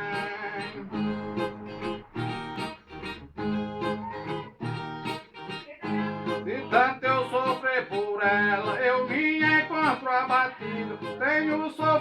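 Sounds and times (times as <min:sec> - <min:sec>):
viola plucked and strummed: 0:00.0 - 0:12.0.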